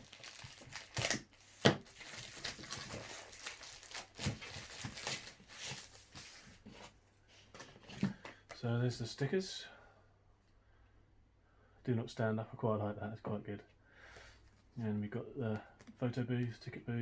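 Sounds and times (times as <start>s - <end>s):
plastic bag crinkling and tearing: 0.0s - 6.4s.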